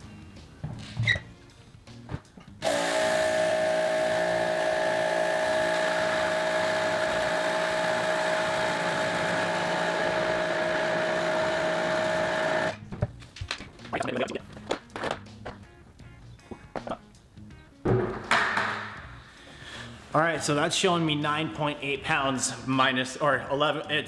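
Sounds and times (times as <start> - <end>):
pressure washer motor whine: 2.6 - 12.8.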